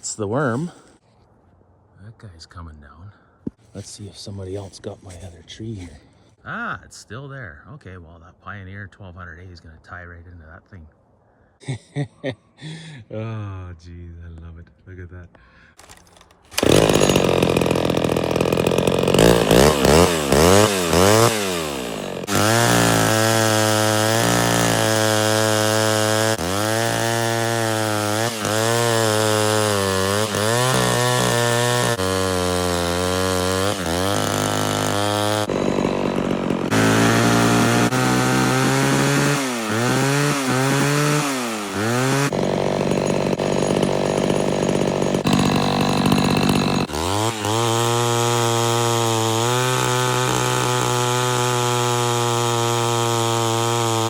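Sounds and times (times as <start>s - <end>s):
chainsaw cutting a tree: 15.8s - 54.0s.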